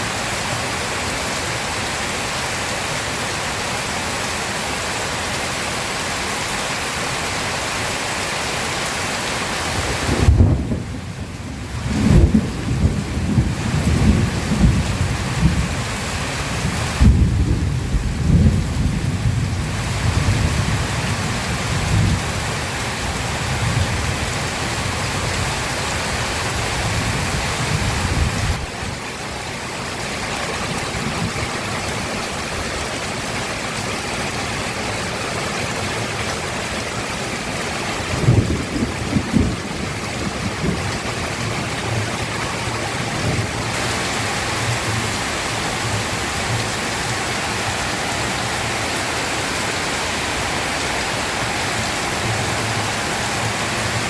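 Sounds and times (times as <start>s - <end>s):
heavy rain pouring: 0.0s - 54.0s
thunder rumbling: 9.9s - 15.9s, 16.5s - 22.4s, 37.2s - 48.8s
thunder crack: 10.1s - 11.0s.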